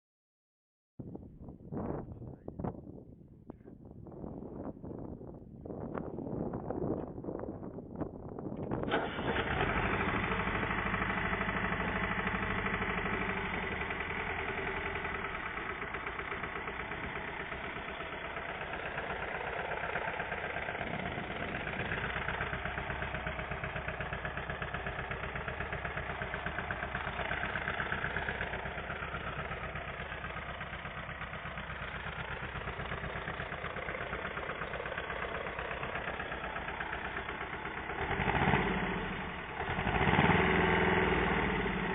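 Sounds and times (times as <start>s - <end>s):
diesel engine running: 8.7s - 41.9s.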